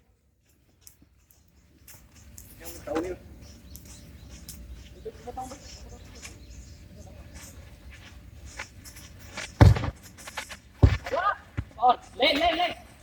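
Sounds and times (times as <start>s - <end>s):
loud thump: 9.6s - 10.1s, 10.8s - 11.7s.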